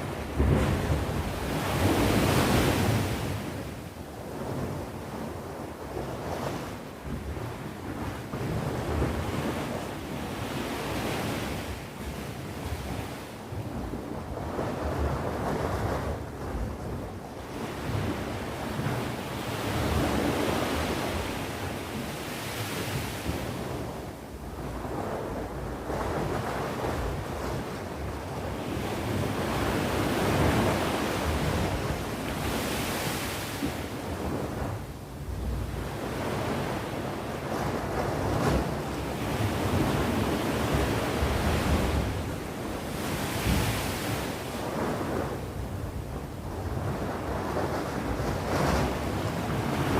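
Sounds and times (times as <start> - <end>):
sea waves breaking: 24.6 - 49.9.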